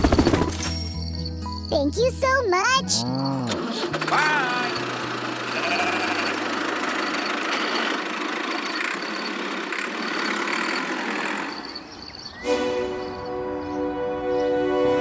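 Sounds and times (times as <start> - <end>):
motor running steadily: 3.8 - 12.3.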